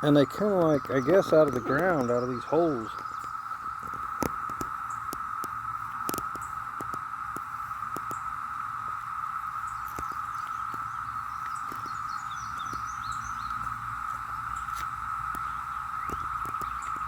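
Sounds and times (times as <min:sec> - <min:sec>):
faint bird chirps: 0:00.0 - 0:03.7, 0:09.5 - 0:17.0
cicadas droning: 0:00.0 - 0:17.0.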